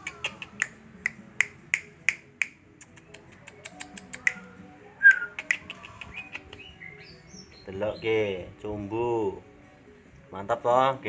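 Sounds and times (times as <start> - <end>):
soft background music: 0.0 - 11.0
songbird chip calls: 5.1 - 8.1.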